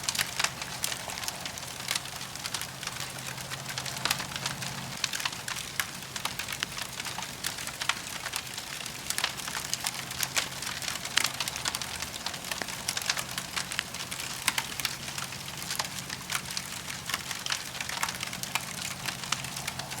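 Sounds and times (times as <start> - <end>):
campfire crackling: 0.0 - 20.0.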